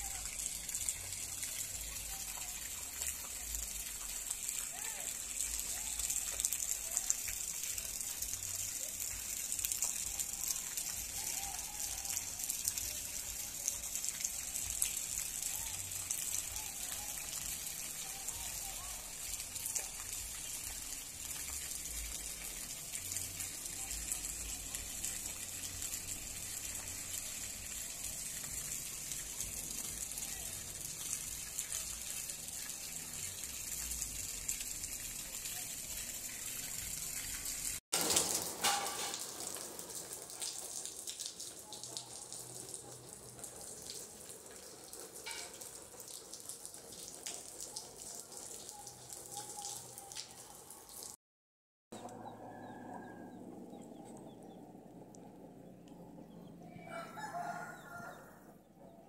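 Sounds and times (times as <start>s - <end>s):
soft rain patter: 0.0s - 51.2s, 52.0s - 58.4s.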